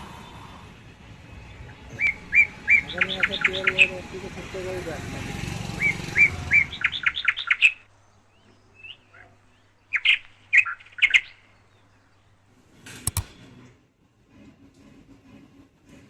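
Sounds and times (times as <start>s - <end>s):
sharp clicks: 13.1s - 13.4s.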